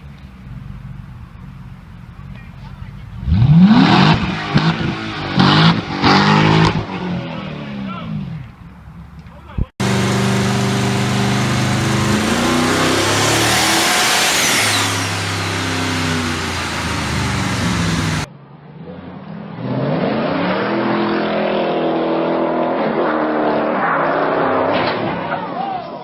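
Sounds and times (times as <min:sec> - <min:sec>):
car engine revving up: 0:03.0 - 0:08.5, 0:09.8 - 0:24.8
car engine at high revs: 0:03.1 - 0:07.8, 0:09.8 - 0:18.3.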